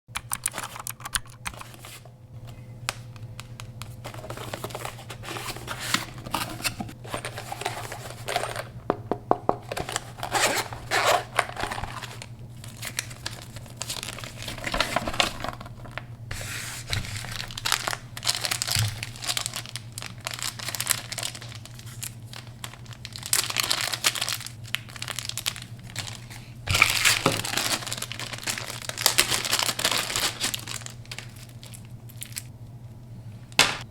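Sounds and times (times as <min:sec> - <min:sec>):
steady low hum: 0:01.0 - 0:33.9
plastic and paper crinkling: 0:01.5 - 0:08.8, 0:09.6 - 0:32.5.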